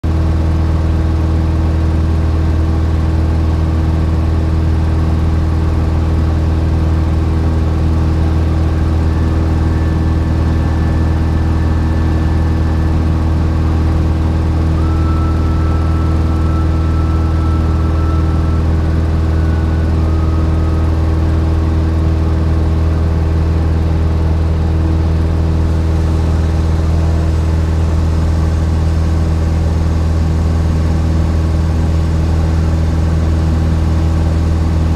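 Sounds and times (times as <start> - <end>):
plane engine and propeller droning: 0.1 - 34.9
faint high whines: 8.1 - 34.9.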